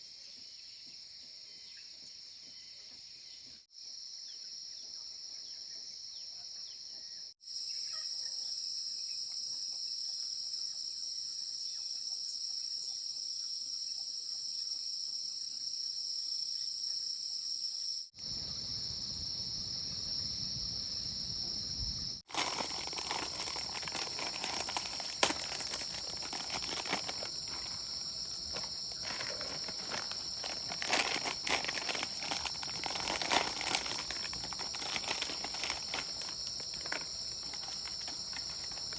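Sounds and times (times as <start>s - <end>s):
insects chorus: 0.0s - 38.9s
close rustling and crackling: 22.3s - 38.9s.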